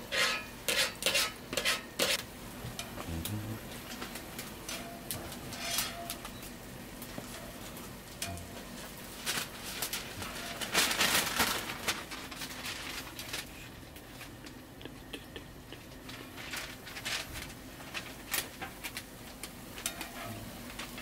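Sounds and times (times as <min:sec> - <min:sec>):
pancakes sizzling in oil: 0:00.0 - 0:03.0, 0:03.8 - 0:13.6, 0:16.2 - 0:21.0.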